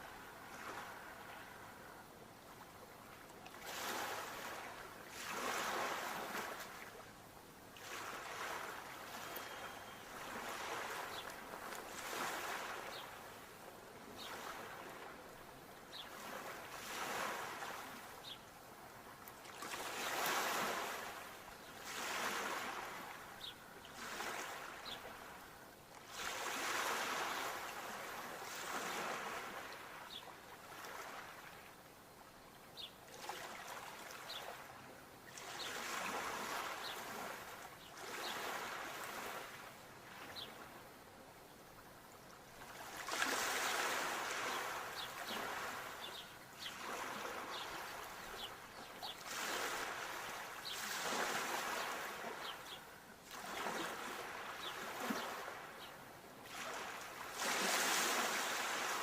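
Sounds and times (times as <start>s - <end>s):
sea waves washing onto shore: 42.7s - 55.8s, 56.4s - 59.0s.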